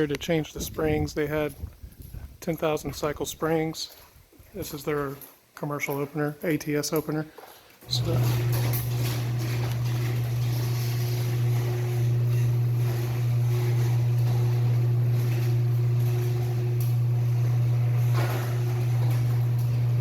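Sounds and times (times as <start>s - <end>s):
garage door opener motor humming: 7.8s - 20.0s.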